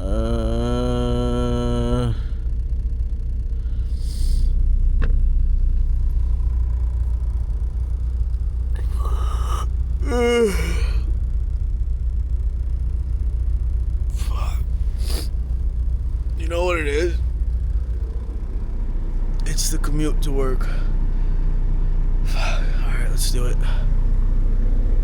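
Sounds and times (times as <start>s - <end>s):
man groaning: 0.0s - 2.4s, 8.8s - 11.1s, 14.1s - 15.3s, 16.4s - 17.2s, 22.3s - 22.8s, 23.4s - 23.9s
low rumble: 0.0s - 25.0s
man exhaling and sighing: 8.8s - 11.1s.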